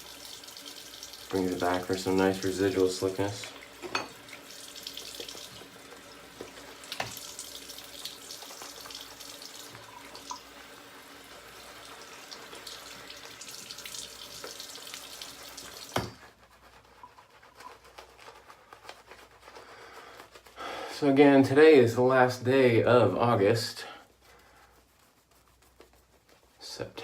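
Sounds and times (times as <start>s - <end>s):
tap water running into sink: 0.0s - 16.3s.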